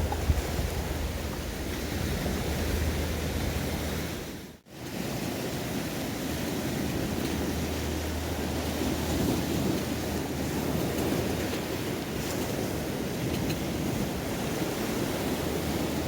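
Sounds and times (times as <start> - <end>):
waves washing on shore: 0.0 - 16.0
wind on microphone: 0.0 - 16.0.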